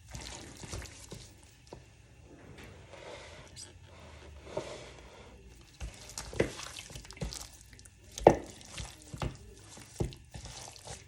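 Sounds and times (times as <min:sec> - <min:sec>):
wet squelches of raw chicken: 0:00.0 - 0:01.7, 0:05.5 - 0:11.0.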